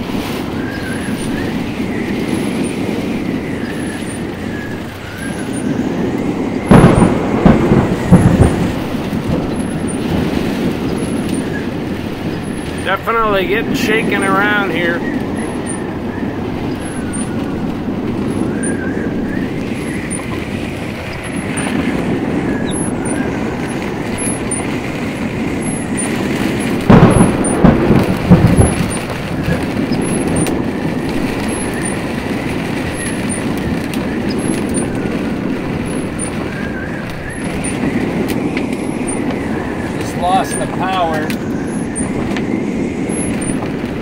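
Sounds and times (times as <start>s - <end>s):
heavy rain on truck cab: 0.0s - 44.0s
wind buffeting truck cab: 0.0s - 44.0s
loud thumps: 6.6s - 14.5s, 15.1s - 40.2s.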